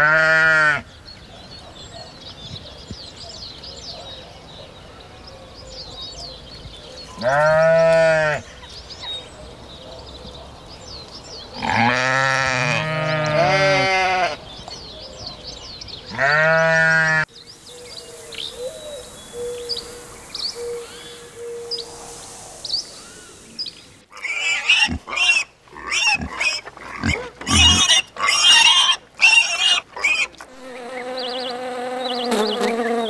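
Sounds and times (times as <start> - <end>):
animal bleating: 0.0 - 0.8, 7.2 - 8.4, 11.6 - 14.4, 16.1 - 17.3, 24.2 - 30.3
birds chirping faintly: 0.8 - 28.8, 29.5 - 33.0.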